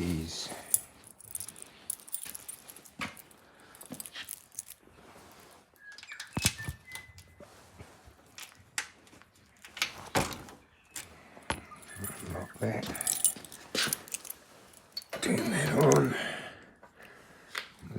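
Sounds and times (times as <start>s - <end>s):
small objects clicking and rattling: 0.6s - 4.9s, 11.0s - 16.0s.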